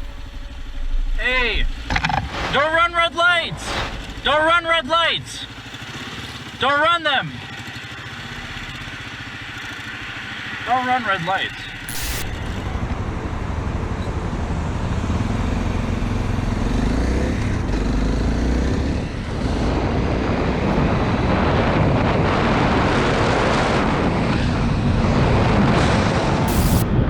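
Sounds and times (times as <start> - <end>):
motorcycle engine running: 3.4 - 27.0
wind noise: 19.3 - 27.0.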